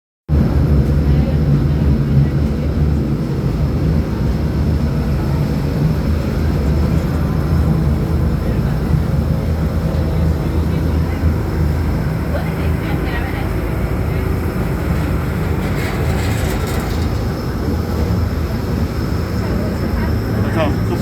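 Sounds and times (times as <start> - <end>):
electric train rumbling: 0.3 - 21.0.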